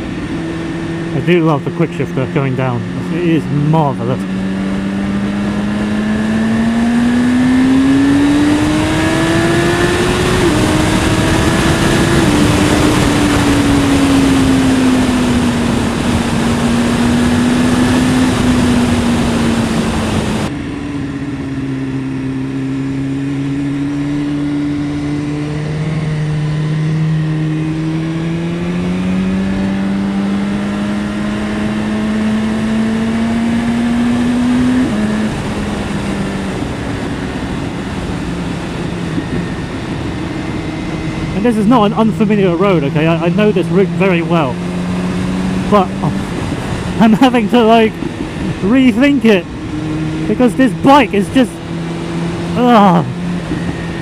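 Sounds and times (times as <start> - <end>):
heavy wind rush: 0.0 - 22.4, 33.8 - 54.0
motorcycle engine: 0.0 - 54.0.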